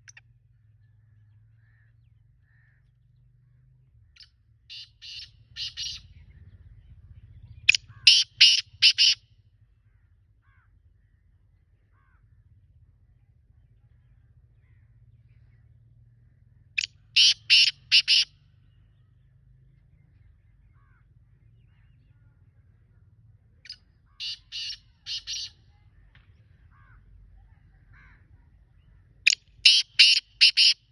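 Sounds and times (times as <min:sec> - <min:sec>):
bird calling in clipped notes: 0:04.2 - 0:06.0, 0:07.7 - 0:09.2, 0:16.8 - 0:18.3, 0:23.6 - 0:26.5, 0:29.3 - 0:30.9.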